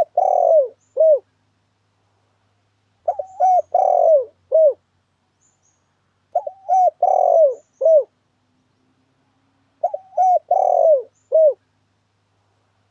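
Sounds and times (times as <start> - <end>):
dove cooing: 0.0 - 1.3, 3.0 - 4.8, 6.3 - 8.2, 9.8 - 11.6.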